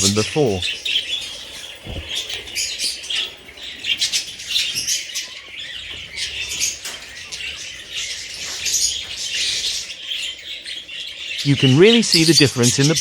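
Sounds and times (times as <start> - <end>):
budgies chirping and chattering: 0.0 - 13.0
wings flapping: 1.2 - 4.7.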